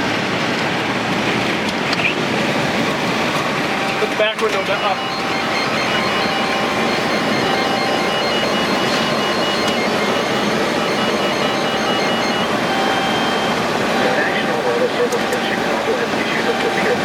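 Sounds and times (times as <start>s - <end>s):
road and wind noise in car: 0.0s - 7.0s, 9.7s - 17.0s
faint high-pitched tones: 3.7s - 17.0s.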